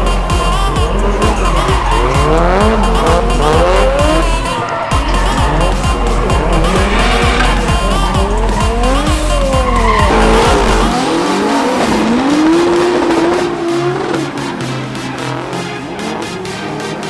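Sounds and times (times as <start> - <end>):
car engines revving: 0.0 - 17.0
music with steady beat: 0.0 - 17.0
tyres squealing: 0.0 - 17.0.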